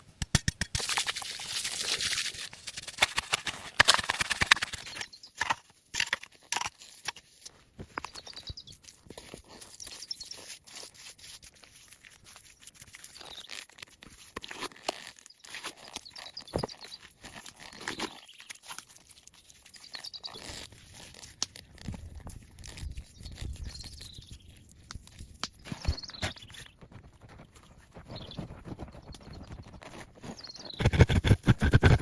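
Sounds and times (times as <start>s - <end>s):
plant material crunching and snapping: 0.1s - 7.2s, 30.8s - 32.0s.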